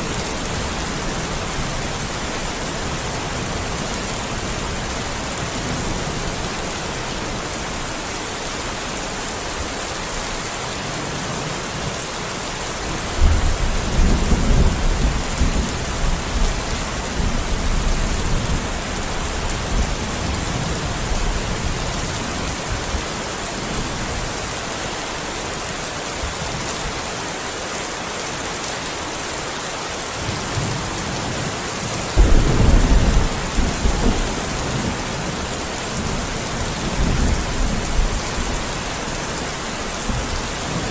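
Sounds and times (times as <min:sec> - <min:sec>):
steady rain falling: 0:00.0 - 0:40.9
thunder rumbling: 0:32.2 - 0:39.1.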